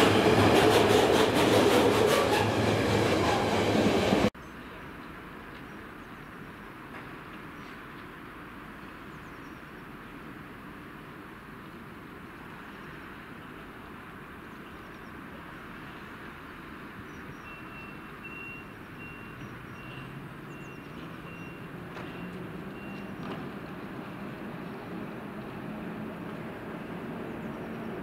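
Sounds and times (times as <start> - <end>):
train clacks: 0.0 - 4.3, 20.9 - 28.0
train running hum: 0.0 - 4.4, 20.5 - 28.0.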